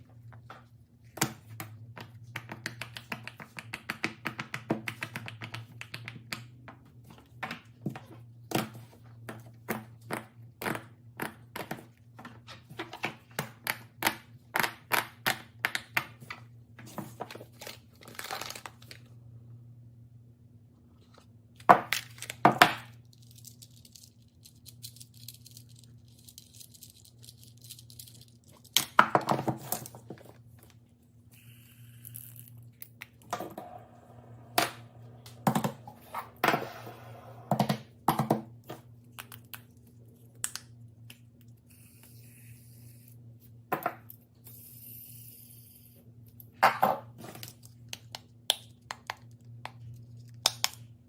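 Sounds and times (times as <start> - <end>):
steady low hum: 18.7 - 21.7, 29.6 - 51.0.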